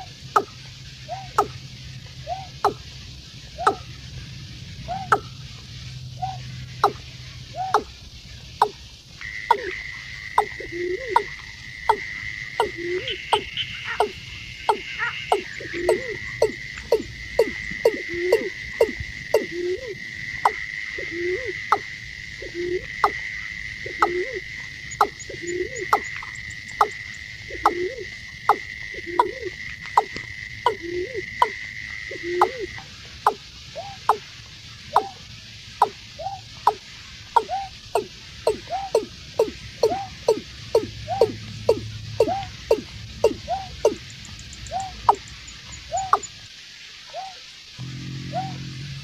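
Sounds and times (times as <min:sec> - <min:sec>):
bird calling with deep hollow notes: 0:00.0 - 0:46.4, 0:47.1 - 0:49.0
high thin whine: 0:47.8 - 0:49.0.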